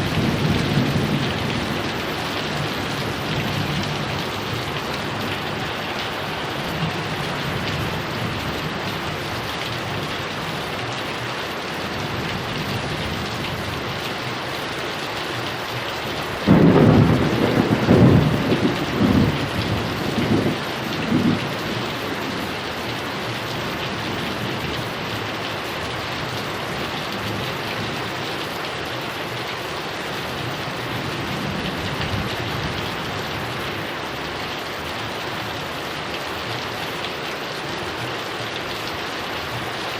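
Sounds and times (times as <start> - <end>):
thunder cracking and rumbling: 0.0 - 8.8, 16.4 - 22.6, 30.8 - 33.5
heavy rain falling: 0.0 - 39.9.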